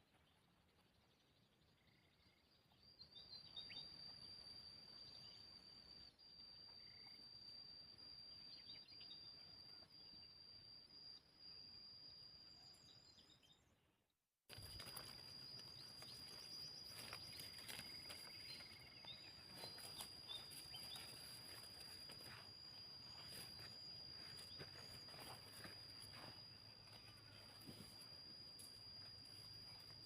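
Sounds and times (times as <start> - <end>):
bird chirps: 0.0 - 13.9, 14.5 - 30.0
high-pitched insect drone: 2.0 - 13.1, 14.5 - 30.0.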